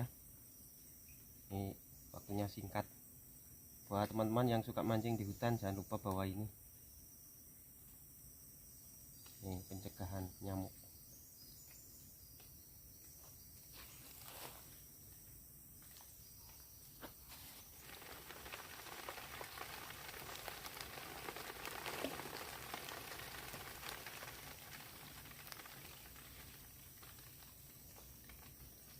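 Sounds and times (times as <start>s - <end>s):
insects chirping: 0.0s - 28.9s
rain patter in forest: 7.8s - 13.2s, 17.4s - 28.9s.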